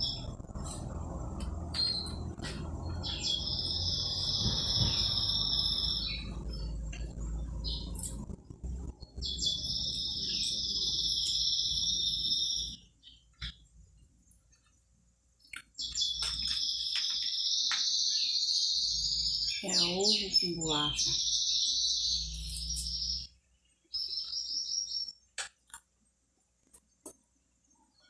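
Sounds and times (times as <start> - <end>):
bird trilling: 3.0 - 6.8, 9.2 - 13.2, 15.8 - 23.3.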